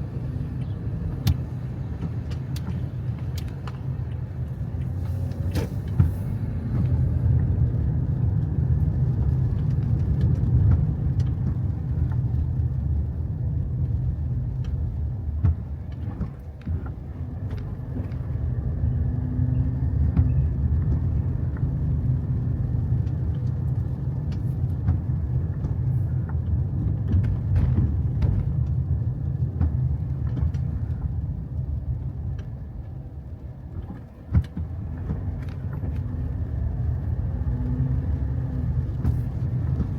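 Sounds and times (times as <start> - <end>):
low road rumble: 0.0 - 39.9
light clicks and taps: 0.6 - 7.6, 8.4 - 12.9, 13.8 - 18.4, 20.0 - 33.0.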